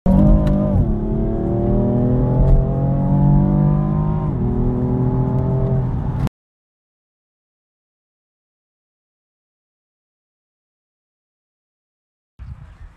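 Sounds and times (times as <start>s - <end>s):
car engine accelerating: 0.1s - 6.3s.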